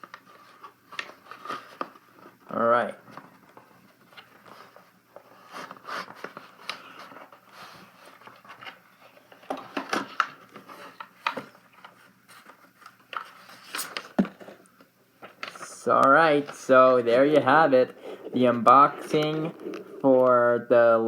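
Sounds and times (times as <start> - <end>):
packaging rustling and clicking: 8.0 - 20.4.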